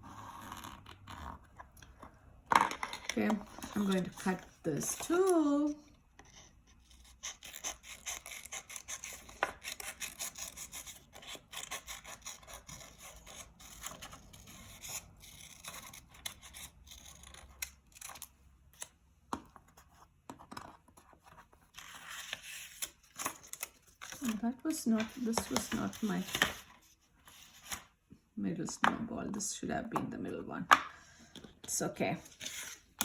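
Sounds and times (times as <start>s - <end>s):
scissors cutting paper: 6.8s - 19.0s.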